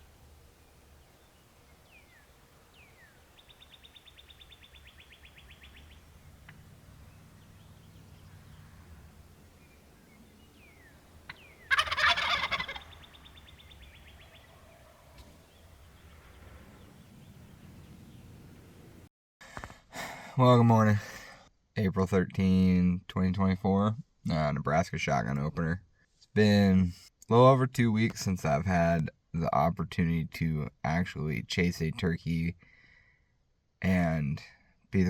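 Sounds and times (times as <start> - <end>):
faint songbird chirps: 0.0 - 19.1
turkey gobbling: 3.4 - 15.8.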